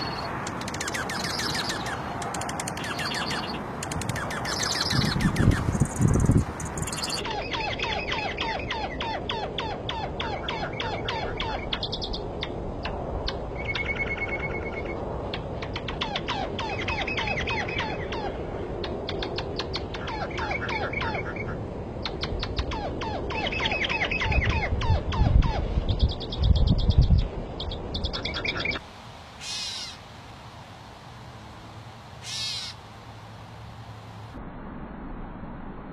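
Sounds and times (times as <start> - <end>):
birds singing and chirping: 0.0 - 12.6, 15.7 - 28.8, 32.2 - 32.8
steady noisy background: 0.0 - 35.9.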